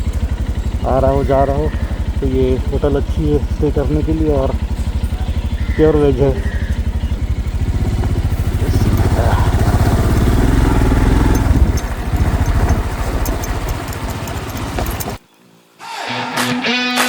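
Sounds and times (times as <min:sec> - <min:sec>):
motorcycle engine running: 0:00.0 - 0:15.2
guitar music: 0:16.0 - 0:17.0.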